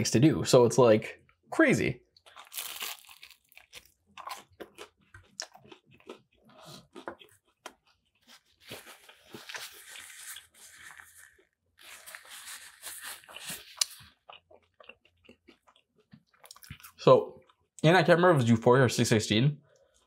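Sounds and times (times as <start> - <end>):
crunchy chewing: 2.2 - 17.6.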